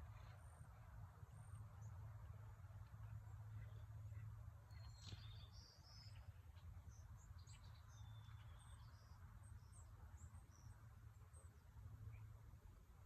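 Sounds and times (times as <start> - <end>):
small birds chirping: 3.0 - 11.5.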